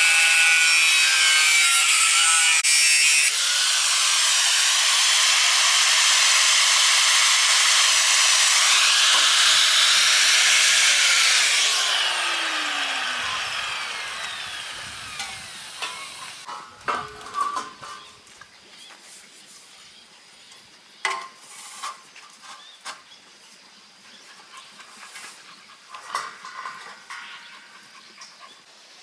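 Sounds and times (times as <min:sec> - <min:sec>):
angle grinder cutting metal: 0:00.0 - 0:18.0.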